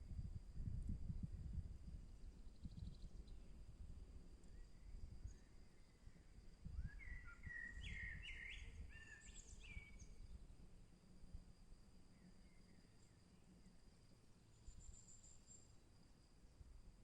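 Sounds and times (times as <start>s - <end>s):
songbird whistling: 6.8s - 10.1s.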